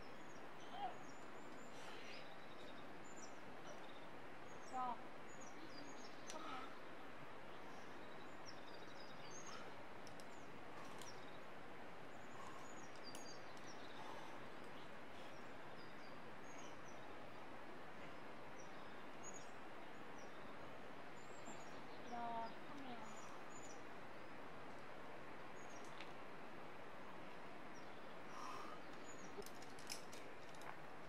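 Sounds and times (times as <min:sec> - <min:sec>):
small birds chirping: 0:00.0 - 0:26.3, 0:26.9 - 0:31.0
steady background hiss: 0:00.0 - 0:31.0
faint clicks: 0:09.5 - 0:11.3, 0:12.4 - 0:13.8, 0:25.8 - 0:26.2.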